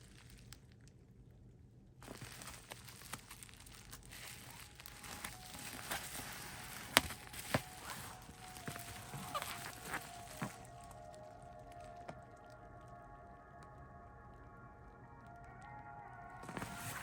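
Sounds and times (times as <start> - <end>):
packaging crinkling and rustling: 0.0 - 0.9, 2.0 - 12.9, 16.4 - 17.0.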